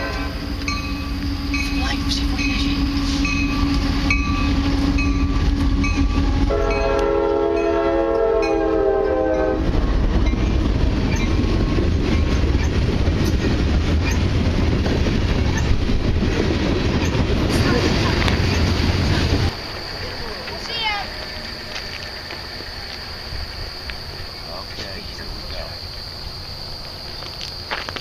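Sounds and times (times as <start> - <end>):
train air horn: 0.0 - 0.5, 2.4 - 9.7
diesel locomotives droning: 0.0 - 28.0
train wheels rumbling and clattering: 0.0 - 28.0.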